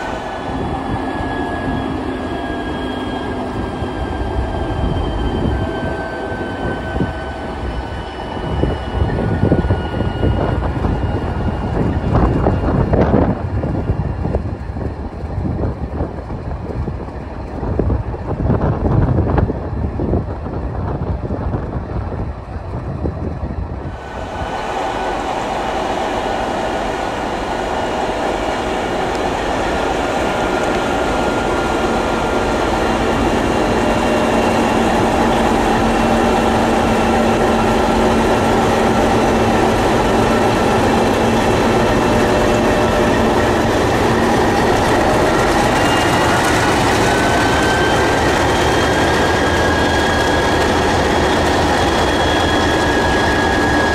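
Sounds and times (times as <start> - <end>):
diesel locomotives roaring: 0.0 - 53.9
low wind-like rumble: 0.0 - 53.9.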